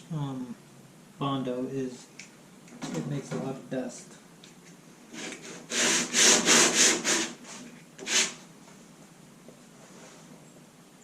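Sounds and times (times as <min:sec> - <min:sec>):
sandpaper sanding strokes: 0:05.2 - 0:08.4.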